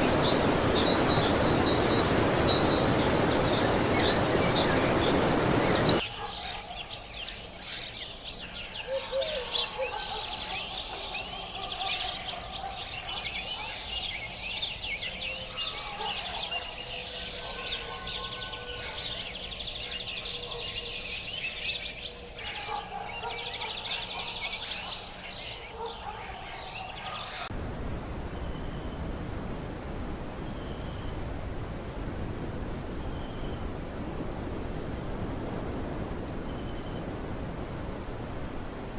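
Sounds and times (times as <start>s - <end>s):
low rush: 0.0s - 6.0s
many birds calling: 0.0s - 27.5s.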